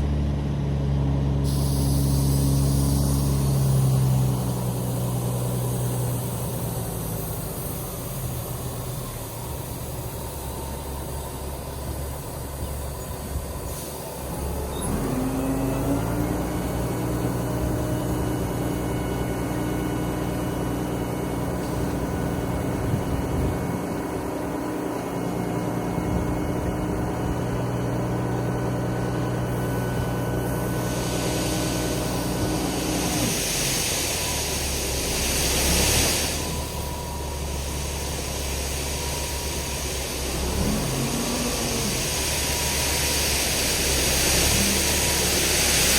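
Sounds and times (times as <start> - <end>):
diesel truck engine running: 0.0 - 45.9
hiss: 1.4 - 18.9, 29.5 - 45.9.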